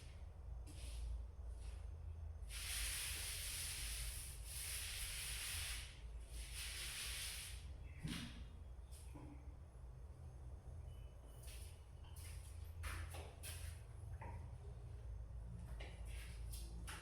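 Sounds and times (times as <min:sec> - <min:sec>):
paint roller on wall: 0:02.5 - 0:08.4.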